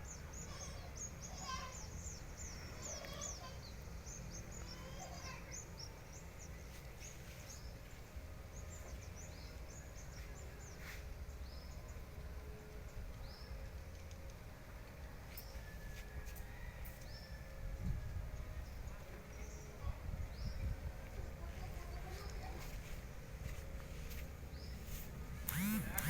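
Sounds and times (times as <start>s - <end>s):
swiftlets chirping: 25.5s - 26.0s.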